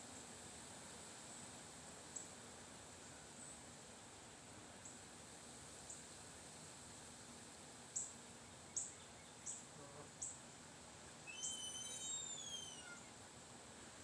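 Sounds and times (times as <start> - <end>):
faint steady hiss: 0.0 - 14.0
small bird chirping: 11.3 - 13.0.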